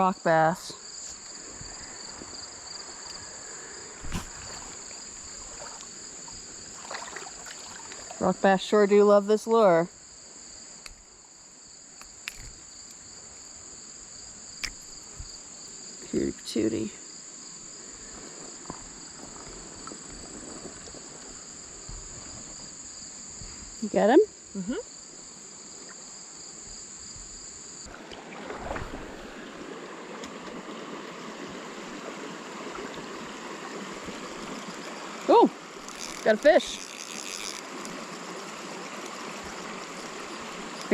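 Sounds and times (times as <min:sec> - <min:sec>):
creek water running: 0:00.0 - 0:11.3, 0:17.5 - 0:22.8, 0:27.8 - 0:40.9
insects trilling: 0:00.0 - 0:40.9.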